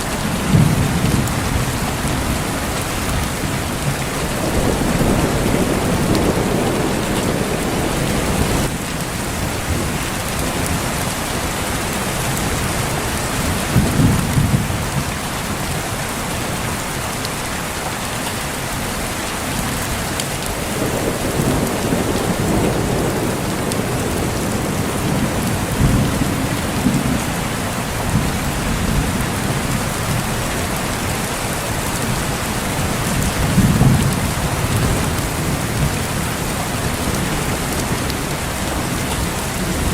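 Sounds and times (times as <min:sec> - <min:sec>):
heavy rain: 0:00.0 - 0:39.9
thunder rolling: 0:00.1 - 0:10.8, 0:20.4 - 0:30.2, 0:33.0 - 0:39.9.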